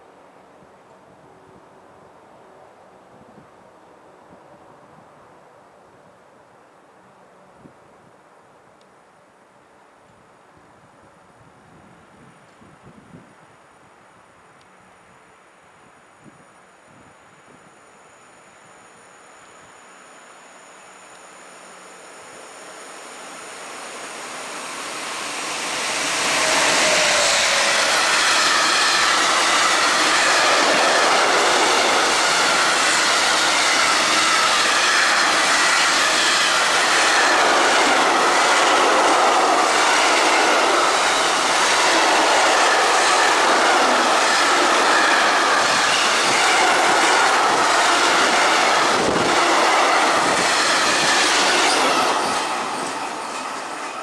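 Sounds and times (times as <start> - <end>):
train wheels on rails clattering: 23.9 - 54.0.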